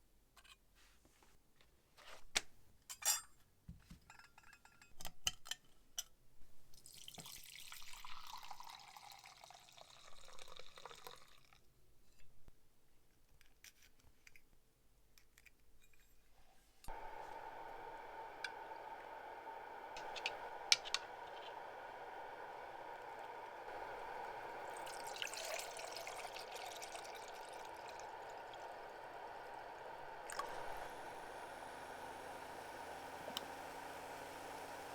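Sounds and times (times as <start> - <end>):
liquid pouring into glass container: 6.8 - 11.7, 20.0 - 34.9.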